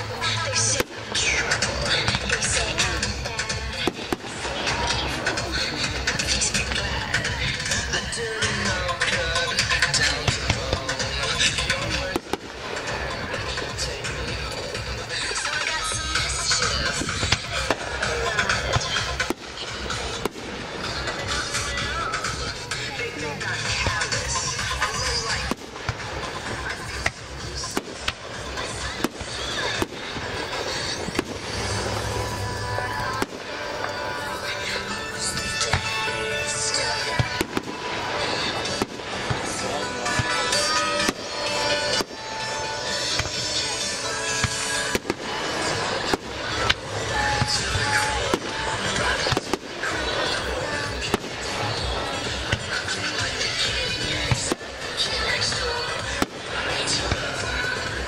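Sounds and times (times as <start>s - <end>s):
background music: 0.0s - 58.0s
fireworks bangs and crackling: 0.0s - 58.0s
firework whistles: 27.5s - 52.5s.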